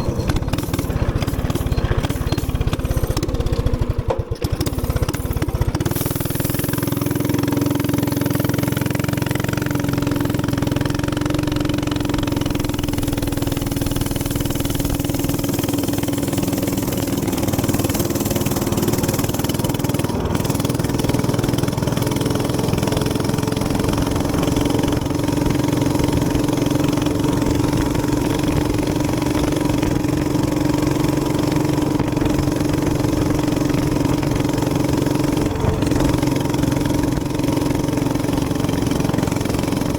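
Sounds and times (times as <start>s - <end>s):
minibike engine running: 0.0s - 39.9s.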